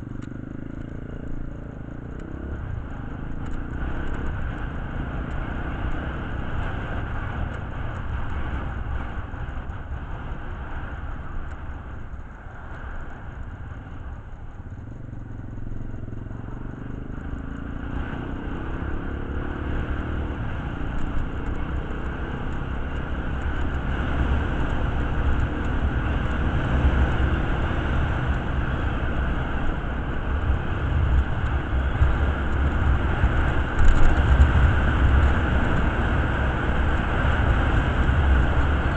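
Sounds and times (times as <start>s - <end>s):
motorcycle engine rumbling: 0.0s - 38.9s.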